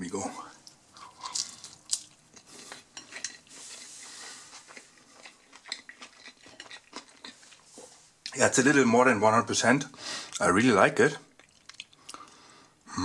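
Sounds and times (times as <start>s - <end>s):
person chewing food: 0.6s - 8.4s, 11.3s - 12.8s.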